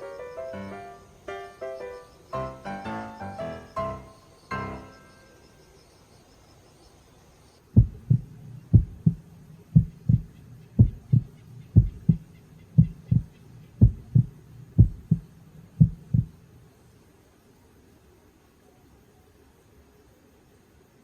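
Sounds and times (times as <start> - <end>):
heartbeat thumps: 7.8 - 16.4.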